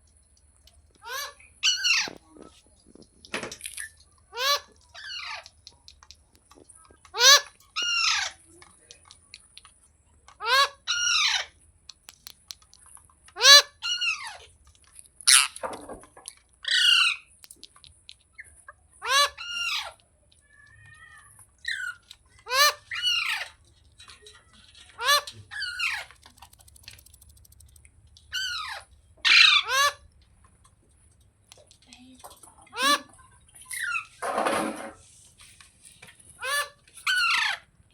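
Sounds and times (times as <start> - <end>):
parrot squawking: 1.0 - 2.2, 4.3 - 5.5, 7.1 - 8.4, 10.4 - 11.5, 13.4 - 14.5, 16.6 - 17.3, 19.0 - 20.0, 20.6 - 23.6, 24.8 - 27.5, 28.3 - 30.1, 32.7 - 34.2, 36.4 - 37.7.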